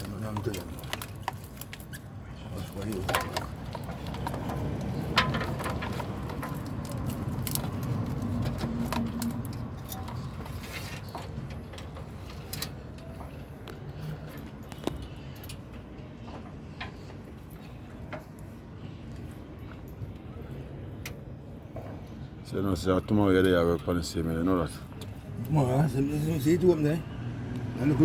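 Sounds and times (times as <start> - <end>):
light metallic clinks and knocks: 0.0 - 18.5.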